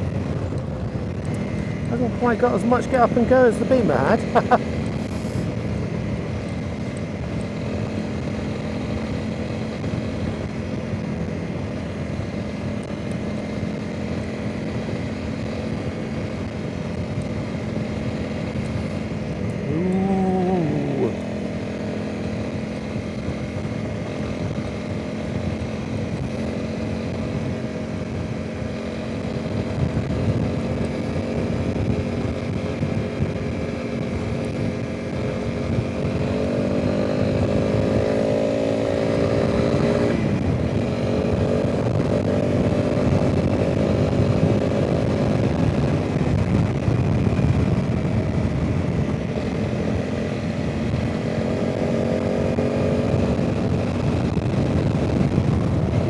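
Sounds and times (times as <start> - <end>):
motorcycle engine cruising: 0.0 - 56.0
sound rising and falling in pitch: 19.7 - 21.3
wind noise on microphone: 29.2 - 56.0.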